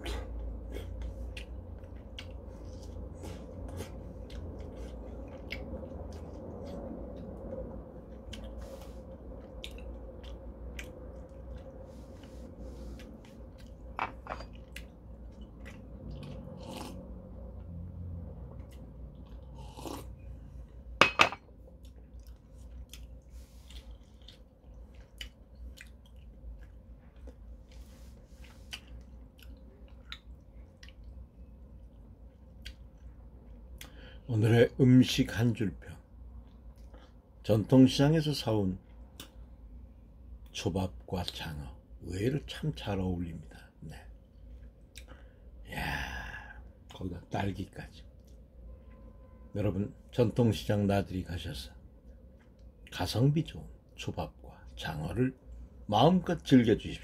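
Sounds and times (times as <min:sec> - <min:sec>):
person chewing food: 0:00.0 - 0:17.6, 0:18.5 - 0:20.7, 0:21.5 - 0:34.0, 0:44.2 - 0:45.3
faint steady hum: 0:00.0 - 0:57.0.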